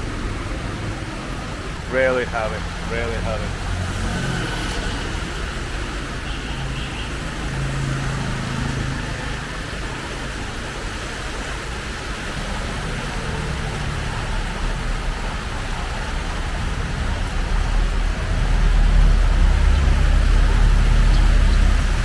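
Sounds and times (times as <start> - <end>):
hiss of passing vehicles: 0.0 - 22.0
low engine hum: 7.3 - 22.0.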